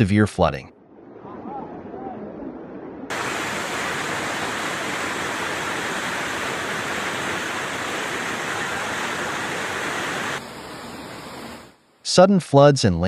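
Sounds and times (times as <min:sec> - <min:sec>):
rushing floodwater: 0:03.1 - 0:11.7.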